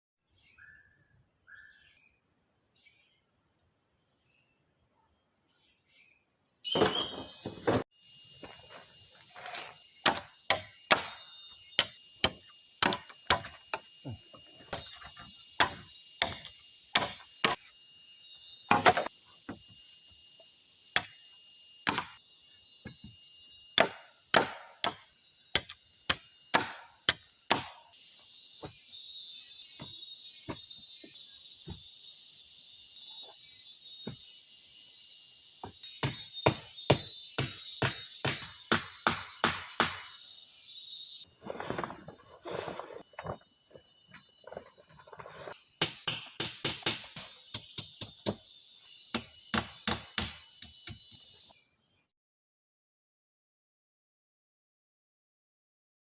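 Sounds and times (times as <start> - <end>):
forest insects droning: 0.2 - 52.1
chopping blows on wood: 10.0 - 13.9, 15.6 - 17.6, 18.7 - 19.1, 21.8 - 22.2, 23.8 - 27.9, 35.6 - 40.2, 45.8 - 48.4, 49.1 - 51.1.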